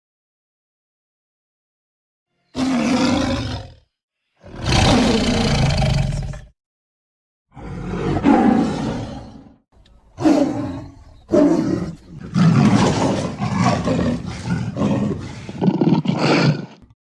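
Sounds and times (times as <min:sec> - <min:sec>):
lion roaring: 0:02.5 - 0:06.5, 0:07.5 - 0:09.6, 0:10.2 - 0:16.9.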